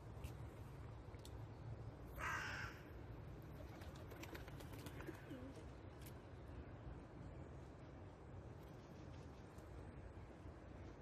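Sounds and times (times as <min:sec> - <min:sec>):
low background rumble: 0:00.0 - 0:11.0
faint low cooing: 0:04.9 - 0:05.9.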